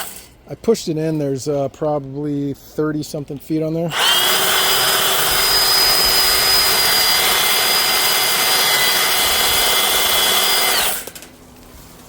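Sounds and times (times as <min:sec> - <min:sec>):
drain-cleaning machine motor whine: 0:03.9 - 0:11.3.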